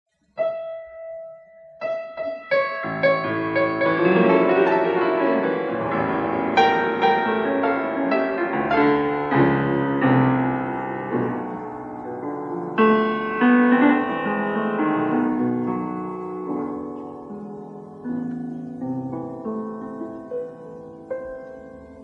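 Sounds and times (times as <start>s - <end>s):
solo piano: 0.1s - 22.0s.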